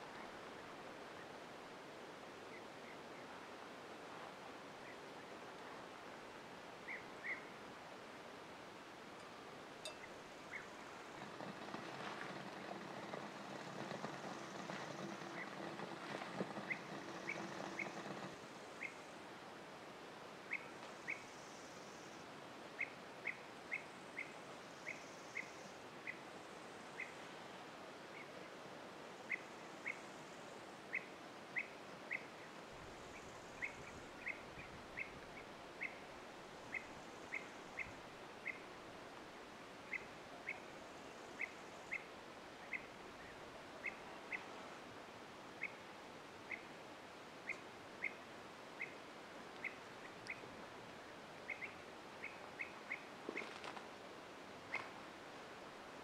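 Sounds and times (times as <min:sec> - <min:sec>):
outdoor background hiss: 0:00.0 - 0:56.0
bird chirping: 0:09.2 - 0:19.0, 0:51.5 - 0:53.5
soft rustle: 0:09.9 - 0:19.0, 0:53.2 - 0:54.1.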